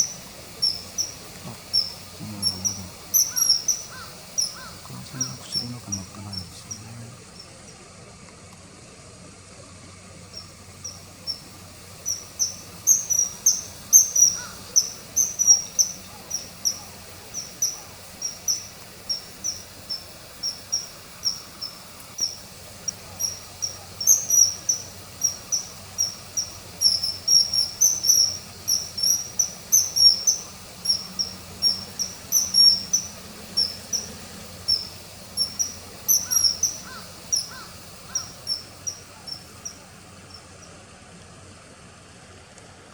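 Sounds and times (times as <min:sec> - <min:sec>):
kingfisher calling: 0:00.0 - 0:07.8, 0:10.3 - 0:40.7.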